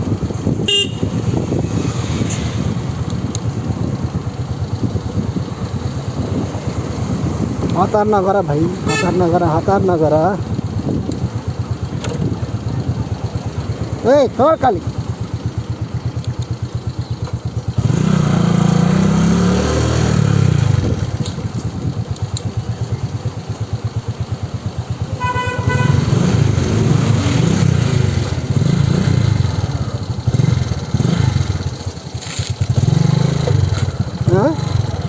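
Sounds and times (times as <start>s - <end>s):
motorcycle engine accelerating: 0.0s - 35.0s
horn beep: 0.6s - 1.4s, 8.8s - 9.5s, 25.2s - 26.3s.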